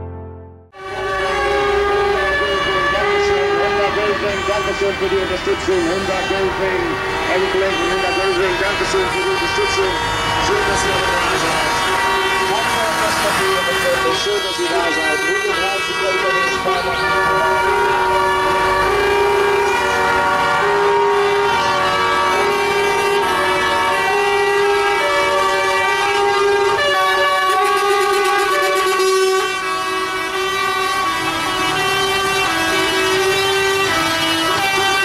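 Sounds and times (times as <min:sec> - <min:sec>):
truck air horns blaring: 0:00.0 - 0:35.0.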